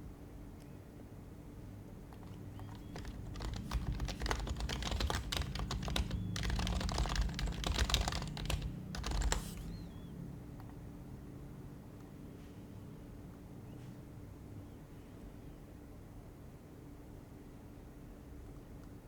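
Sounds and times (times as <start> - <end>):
soft keyboard typing: 2.1 - 10.0.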